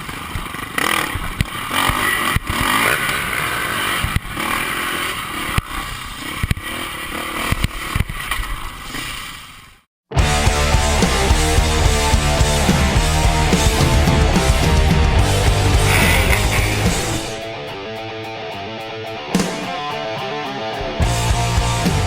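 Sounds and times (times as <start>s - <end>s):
dirt bike engine running: 0.0s - 5.4s, 10.2s - 17.5s, 21.0s - 22.0s
heavy metal music: 10.1s - 22.0s.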